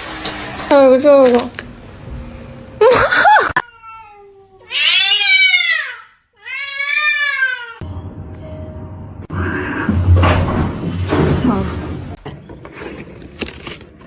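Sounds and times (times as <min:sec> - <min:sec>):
cat meowing: 0:03.6 - 0:07.8.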